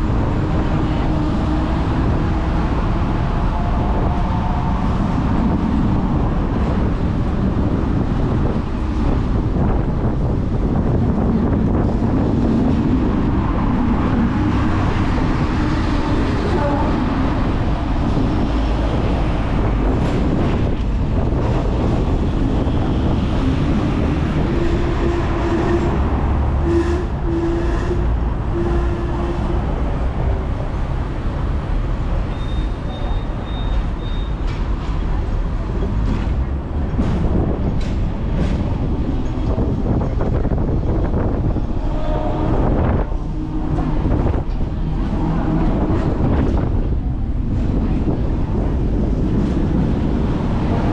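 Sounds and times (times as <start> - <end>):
tram wheels rumbling on rails: 0.0 - 50.9
faint high squeal: 32.3 - 34.4.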